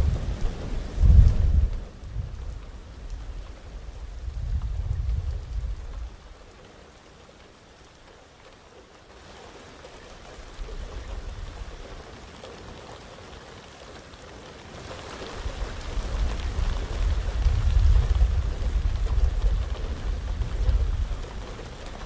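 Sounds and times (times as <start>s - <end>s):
low thunder rumble: 0.0s - 6.4s, 15.4s - 22.0s
heavy rain falling: 0.0s - 22.0s.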